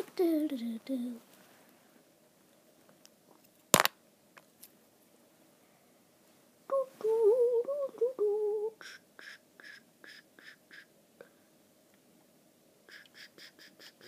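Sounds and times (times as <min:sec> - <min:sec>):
person humming: 0:06.7 - 0:08.9.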